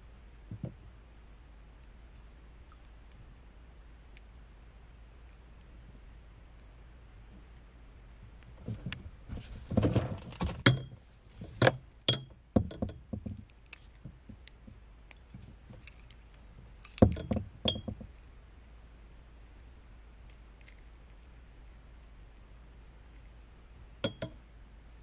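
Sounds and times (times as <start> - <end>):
gear clattering on a kayak: 8.6 - 16.2, 16.8 - 18.2.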